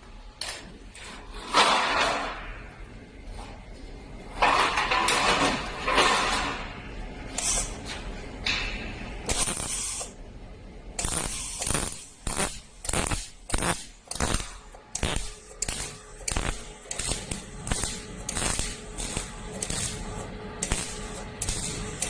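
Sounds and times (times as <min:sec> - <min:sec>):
welding arc crackling: 0:07.3 - 0:07.9, 0:09.2 - 0:10.2, 0:10.9 - 0:22.0.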